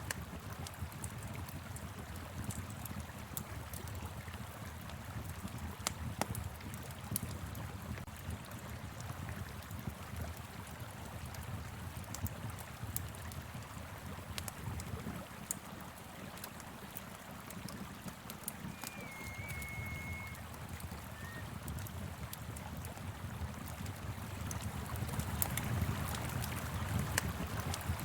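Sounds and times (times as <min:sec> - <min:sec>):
wood fire crackling and popping: 0:14.1 - 0:28.0
flowing river rushing: 0:18.4 - 0:21.5
low wind rumble: 0:18.5 - 0:22.2.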